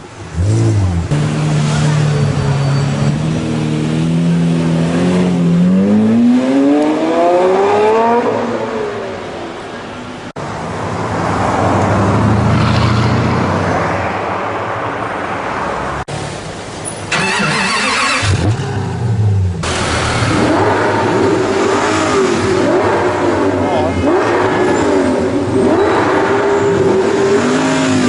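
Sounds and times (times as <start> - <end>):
supercar engines revving: 0.0 - 9.9, 17.0 - 28.0.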